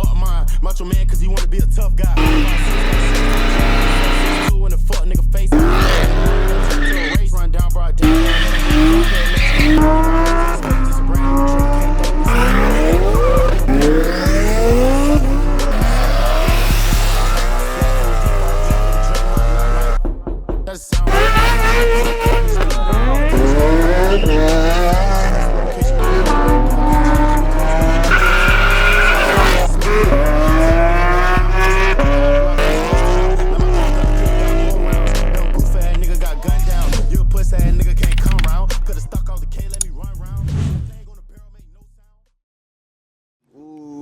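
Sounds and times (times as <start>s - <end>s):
hip-hop beat with heavy bass: 0.0s - 42.2s
car engines revving: 2.1s - 20.0s, 21.0s - 39.0s
tyre squeal: 2.2s - 4.5s, 5.5s - 20.0s, 21.1s - 36.4s.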